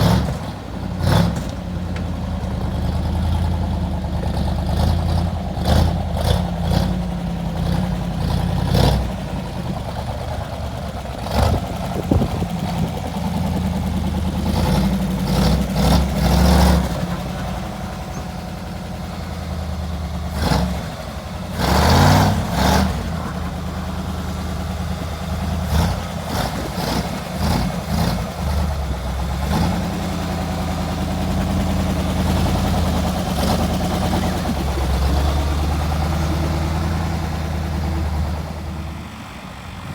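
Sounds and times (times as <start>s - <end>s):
engine revving: 0.0s - 1.6s, 4.2s - 9.8s, 10.4s - 18.2s, 18.8s - 39.9s
engine idling: 0.0s - 39.9s.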